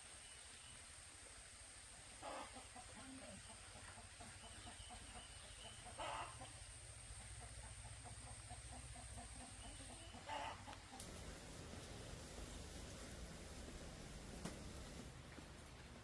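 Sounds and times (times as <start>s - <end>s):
chickens clucking softly: 1.9s - 15.0s
sharp chicken calls: 2.2s - 11.2s.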